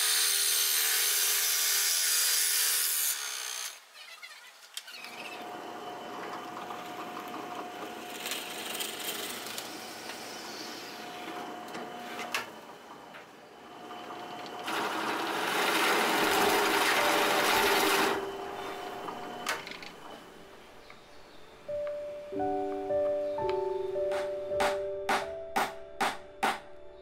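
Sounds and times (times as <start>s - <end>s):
small power tool motor running: 0.0s - 3.9s, 5.0s - 12.4s, 13.6s - 19.5s.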